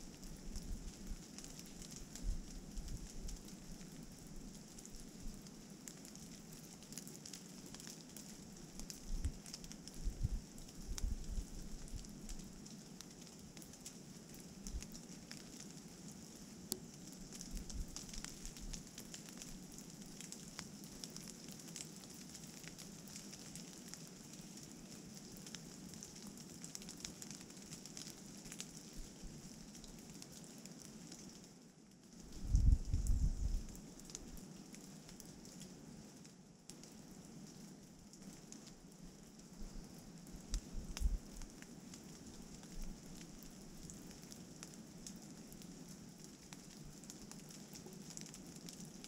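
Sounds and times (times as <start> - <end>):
rain pattering: 0.0 - 49.0
wind rumbling on microphone: 8.8 - 12.4, 17.4 - 18.8, 32.3 - 34.4, 40.4 - 41.4.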